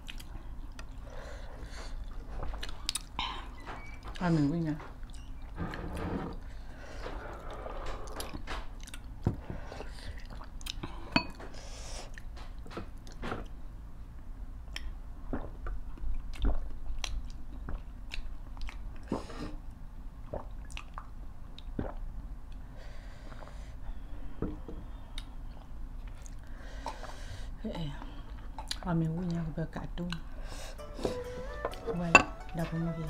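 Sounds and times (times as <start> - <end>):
people chewing and lip smacking: 0.0 - 1.1, 1.7 - 5.6, 7.2 - 13.6, 14.7 - 19.6, 20.2 - 22.6, 25.1 - 27.1, 28.2 - 28.9.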